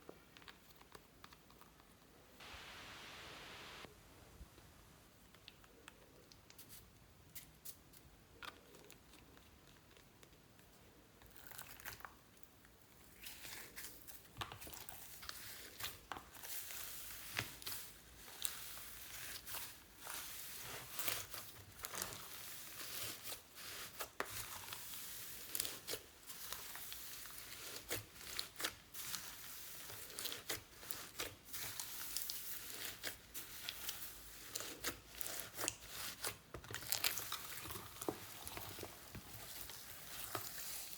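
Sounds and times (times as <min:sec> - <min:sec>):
slime crackling and popping: 0:29.9 - 0:40.9.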